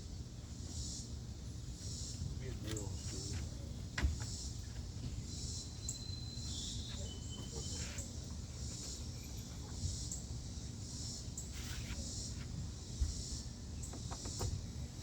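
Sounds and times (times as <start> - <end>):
insects chirping in pulses: 4.2 - 15.0.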